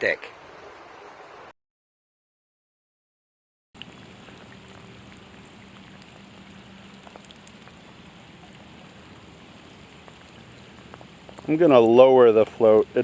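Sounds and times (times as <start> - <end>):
steady rain falling: 3.8 - 13.0.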